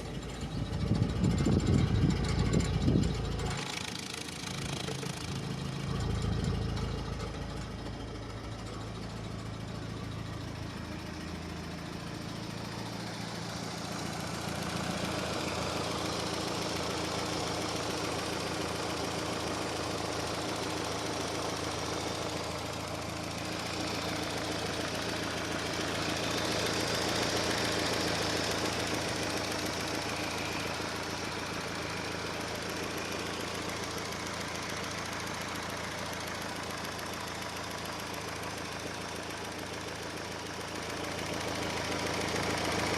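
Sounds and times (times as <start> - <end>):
car engine running: 0.0 - 42.9.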